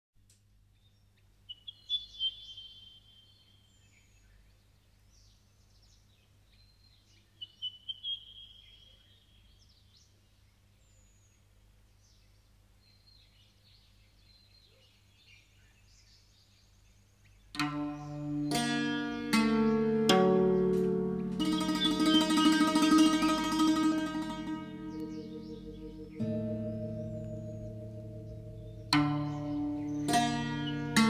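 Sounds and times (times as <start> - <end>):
birds chirping and twittering: 0.7 - 31.0
low steady hum: 15.9 - 31.0.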